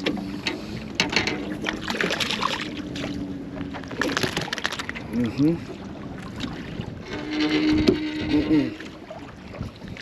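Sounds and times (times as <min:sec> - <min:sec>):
fish splashing: 0:03.8 - 0:05.0.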